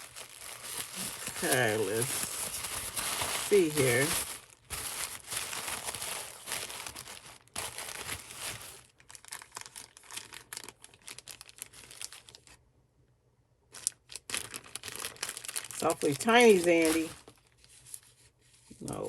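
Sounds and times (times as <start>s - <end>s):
packaging crinkling and tearing: 0.0s - 12.6s, 13.7s - 18.2s.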